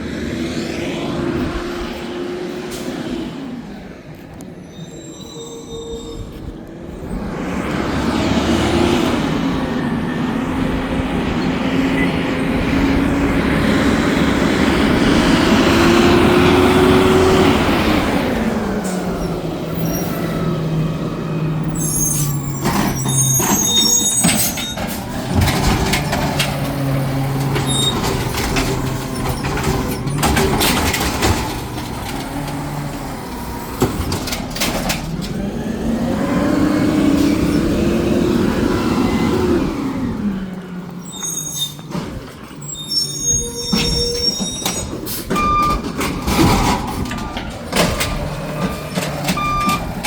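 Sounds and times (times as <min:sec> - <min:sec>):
engine revving: 0:00.0 - 0:03.9, 0:07.1 - 0:23.7, 0:25.0 - 0:40.9
garbage truck engine running: 0:06.8 - 0:50.0
metal clanking and knocking: 0:22.6 - 0:35.4, 0:43.3 - 0:50.0.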